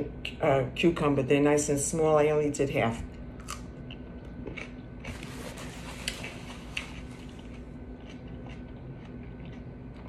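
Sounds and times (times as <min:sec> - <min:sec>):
steady low hum: 0:00.0 - 0:10.0
chewing cucumber: 0:03.4 - 0:10.0.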